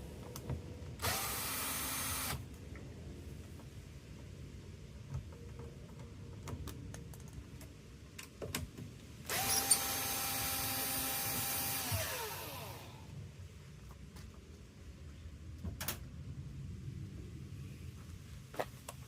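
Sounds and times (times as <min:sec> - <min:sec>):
power drill running: 0:01.0 - 0:02.4, 0:09.3 - 0:13.1.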